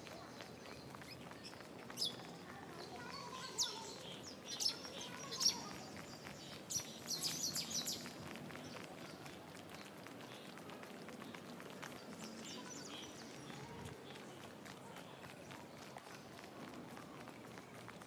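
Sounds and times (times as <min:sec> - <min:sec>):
birds chirping: 0:00.0 - 0:14.5.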